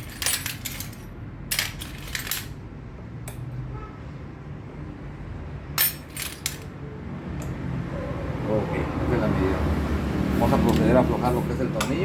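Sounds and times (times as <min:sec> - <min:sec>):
metal hand tools clinking: 0:00.0 - 0:02.6, 0:05.8 - 0:06.7.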